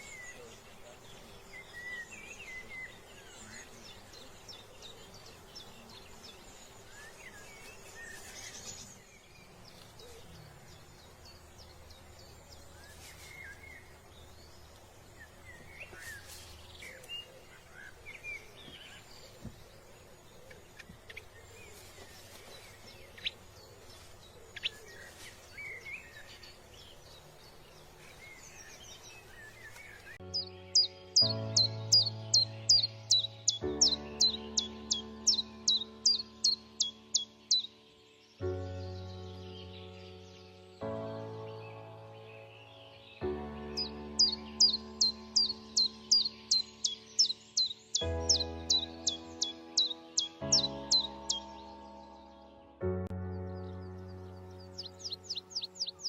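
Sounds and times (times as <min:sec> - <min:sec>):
small birds chirping: 0:00.0 - 0:56.0
music: 0:30.2 - 0:56.0.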